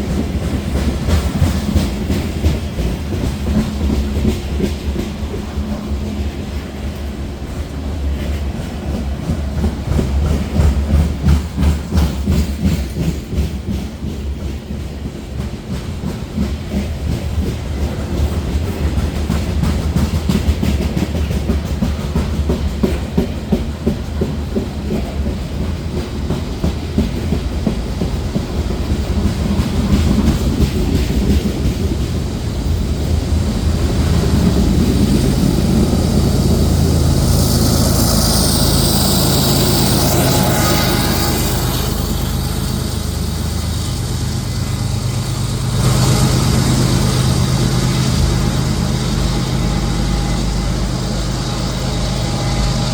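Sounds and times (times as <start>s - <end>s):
train wheel clatter: 0.0s - 52.9s
heavy low rumble: 31.4s - 52.9s
diesel engine drone: 32.2s - 52.9s.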